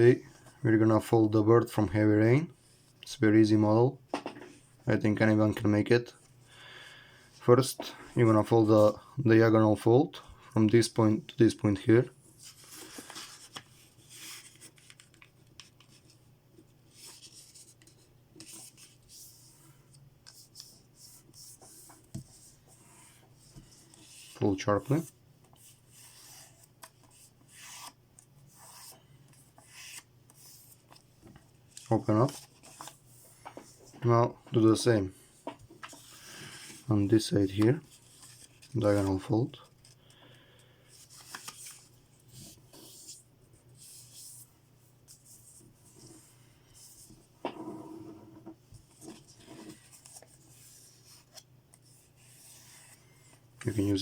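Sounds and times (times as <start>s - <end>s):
paper rustling and rubbing: 12.3s - 16.2s, 16.8s - 19.6s, 20.3s - 31.1s, 31.7s - 34.0s, 37.6s - 39.2s, 40.9s - 47.2s, 48.9s - 54.0s
paper being folded and creased: 12.4s - 16.2s, 23.4s - 31.1s, 31.7s - 33.8s, 37.8s - 40.0s, 40.9s - 43.2s, 48.9s - 53.9s
paper crinkling: 41.0s - 43.1s.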